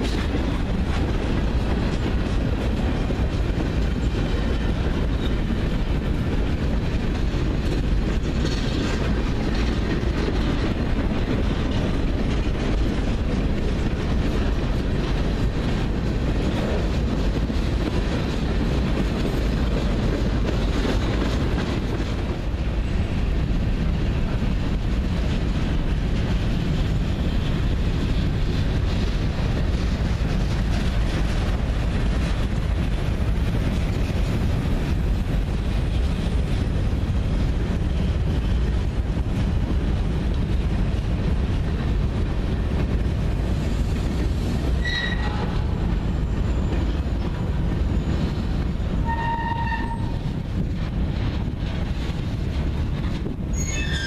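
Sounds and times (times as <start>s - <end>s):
freight train rumbling past: 0.0s - 54.0s
train wheel squeals: 4.0s - 6.0s, 43.7s - 50.4s, 53.5s - 54.0s.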